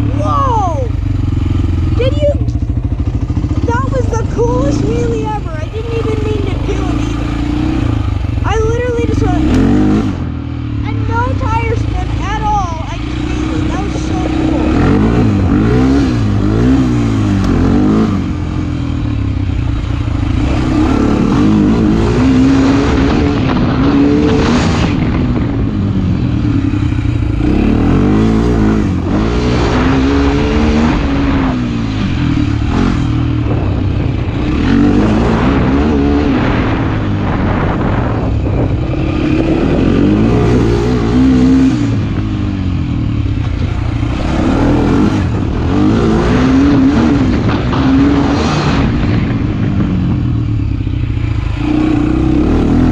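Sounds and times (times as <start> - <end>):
motorcycle engine revving: 0.0 - 52.9
wind rushing over microphone: 0.0 - 52.9.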